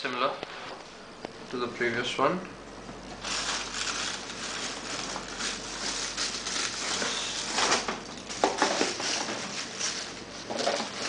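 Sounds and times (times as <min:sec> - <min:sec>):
packaging rustling and scraping: 0:03.2 - 0:11.0.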